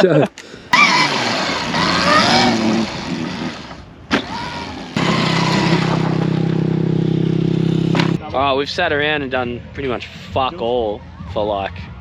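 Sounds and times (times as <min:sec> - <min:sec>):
engine idling: 0:00.7 - 0:08.2.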